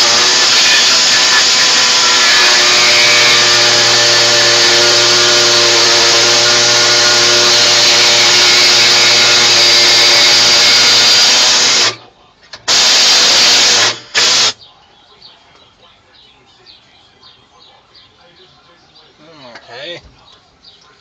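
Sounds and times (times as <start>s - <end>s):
air-powered cutter whining: 0.0s - 12.0s, 12.7s - 14.6s.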